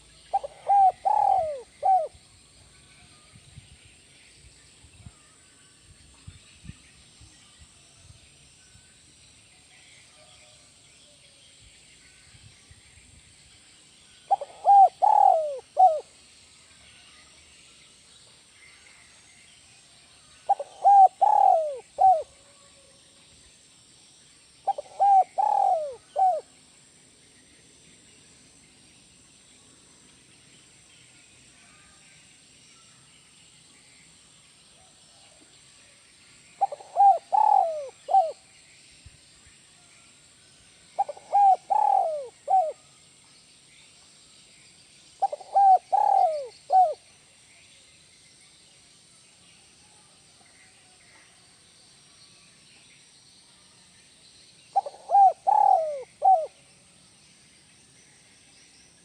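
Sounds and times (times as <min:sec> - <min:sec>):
dove cooing: 0:00.0 - 0:02.2, 0:14.3 - 0:16.1, 0:20.5 - 0:22.4, 0:24.6 - 0:26.5, 0:36.6 - 0:38.4, 0:41.0 - 0:42.8, 0:45.2 - 0:47.0, 0:54.7 - 0:56.6.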